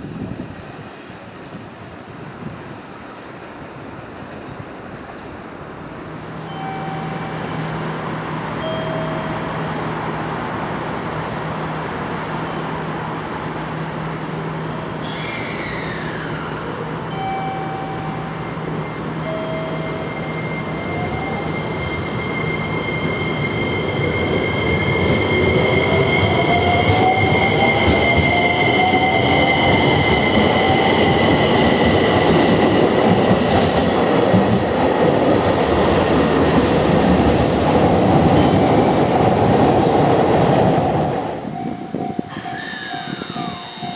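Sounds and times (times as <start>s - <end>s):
train wheel and track noise: 0.0s - 43.9s
electric train inverter whine: 5.6s - 34.8s, 40.8s - 43.9s.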